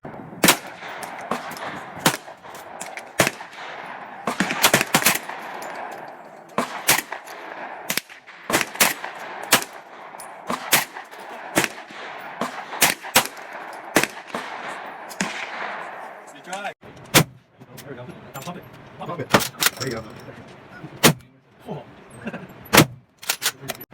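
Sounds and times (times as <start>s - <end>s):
gunshots: 0.4s - 17.4s.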